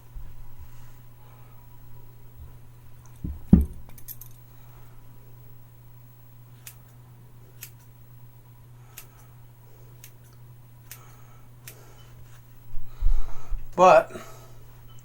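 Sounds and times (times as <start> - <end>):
steady low hum: 0.0 - 15.0
knock: 3.2 - 3.8
scissors snipping hair: 6.6 - 7.0.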